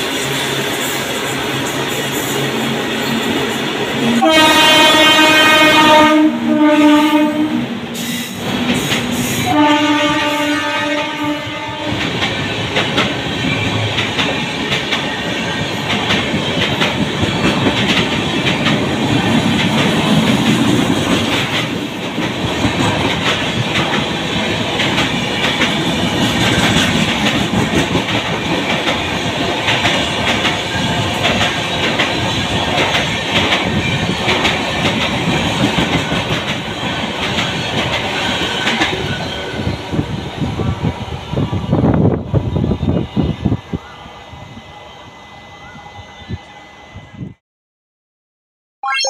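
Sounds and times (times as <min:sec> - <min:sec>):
train wheels clattering over rail joints: 0:12.0 - 0:39.1.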